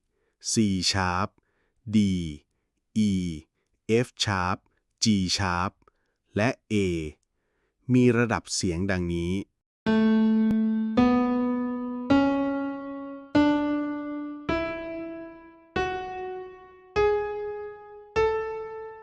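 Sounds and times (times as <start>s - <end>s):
piano playing a scale: 9.9s - 19.0s.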